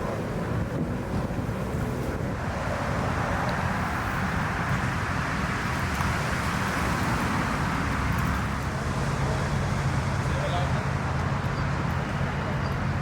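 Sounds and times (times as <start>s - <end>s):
wind noise on microphone: 0.0s - 10.2s
engine rumble: 0.0s - 13.0s.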